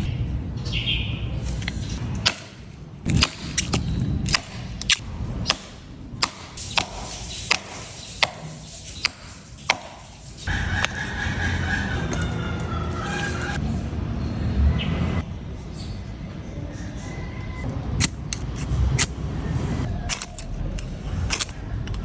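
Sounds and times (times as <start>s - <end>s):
steady low rumble: 0.0s - 16.5s
sharp irregular knocks: 2.2s - 13.6s.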